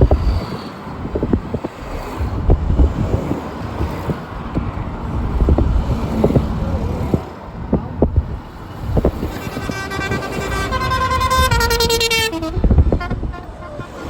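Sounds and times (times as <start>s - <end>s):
low engine rumble: 0.0s - 14.0s
wind on microphone: 0.0s - 14.0s
faint horn: 9.4s - 14.0s.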